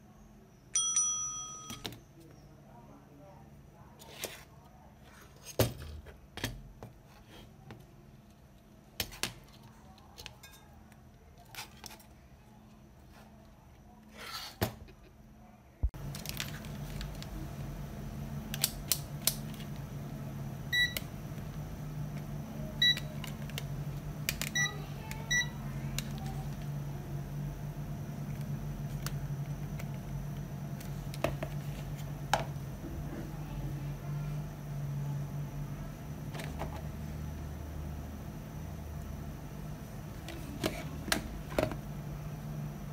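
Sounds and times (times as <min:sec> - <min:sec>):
low electrical hum: 0:00.0 - 0:42.9.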